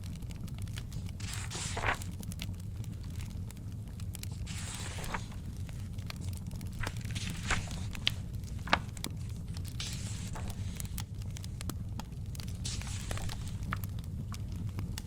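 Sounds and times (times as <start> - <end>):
wood fire crackling: 0.0 - 15.0
book pages turning: 0.7 - 2.4, 4.2 - 11.7, 12.4 - 13.9.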